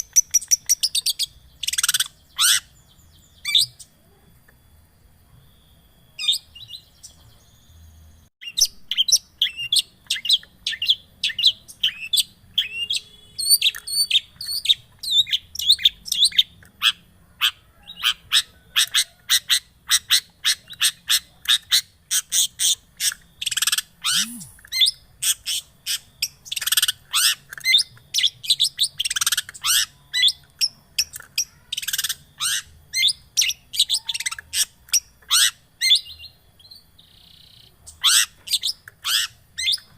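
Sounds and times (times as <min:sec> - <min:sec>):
bird singing sharp chirps: 0:23.4 - 0:24.9.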